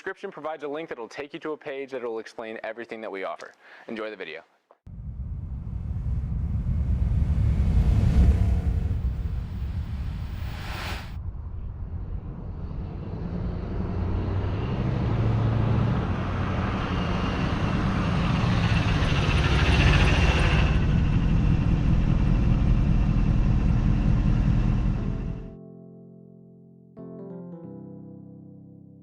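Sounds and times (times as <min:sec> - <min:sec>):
car engine low rumble: 0:04.9 - 0:25.6.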